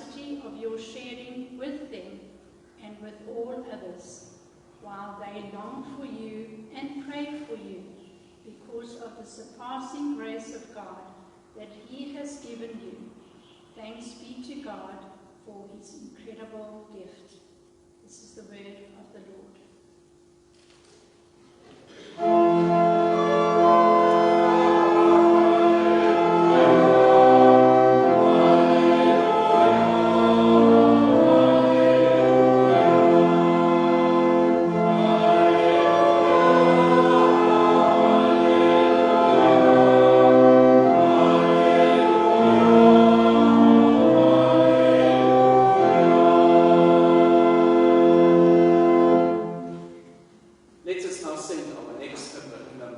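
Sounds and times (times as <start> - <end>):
organ playing slow chords: 21.9 - 50.8
people singing: 24.1 - 47.9.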